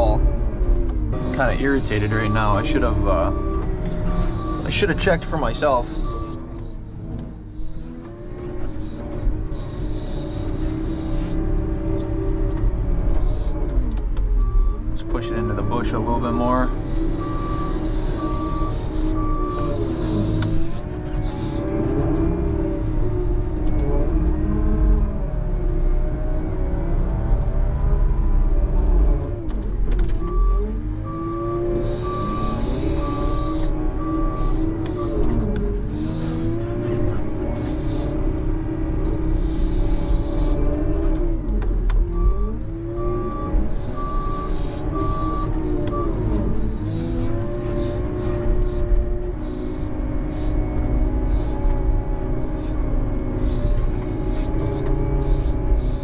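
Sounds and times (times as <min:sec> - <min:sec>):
truck engine revving: 0:00.0 - 0:56.0
reversing beeper: 0:01.1 - 0:08.4, 0:14.4 - 0:23.2, 0:30.2 - 0:38.3, 0:42.0 - 0:51.9.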